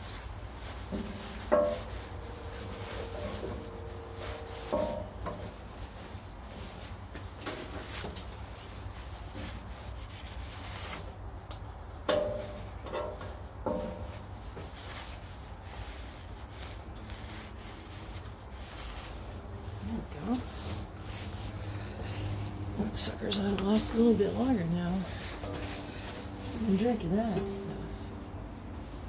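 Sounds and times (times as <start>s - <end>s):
hands rubbing tape: 13.5s - 27.0s.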